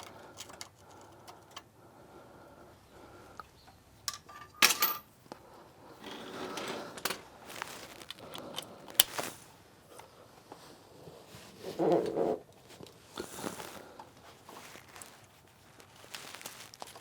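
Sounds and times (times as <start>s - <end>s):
metal tools clinking: 4.0s - 5.2s, 6.0s - 9.2s
shuffling and scraping: 4.7s - 17.0s.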